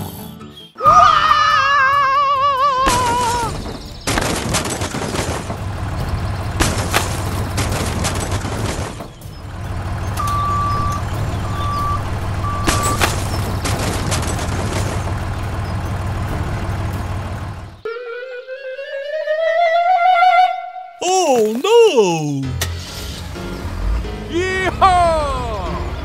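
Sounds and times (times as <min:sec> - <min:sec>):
heavy vehicle engine running: 0:04.8 - 0:17.9
reversing alarm beeps: 0:10.2 - 0:13.5.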